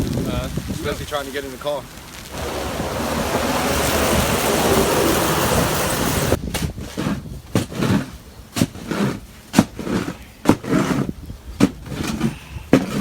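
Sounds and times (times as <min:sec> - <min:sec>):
dull thuds: 0:07.6 - 0:13.0.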